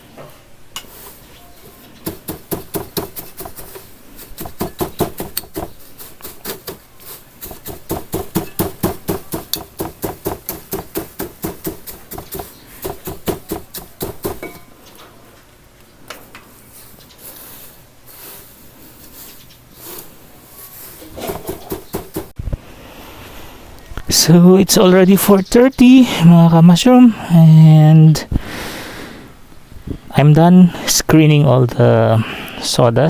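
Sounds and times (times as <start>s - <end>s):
hand tapping sawdust screen: 2.0s - 14.5s, 21.2s - 22.3s.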